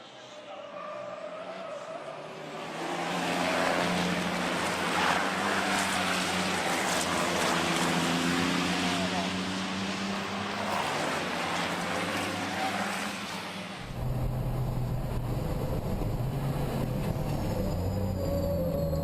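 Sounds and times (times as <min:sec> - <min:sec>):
low diesel engine drone: 0:13.8 - 0:19.0.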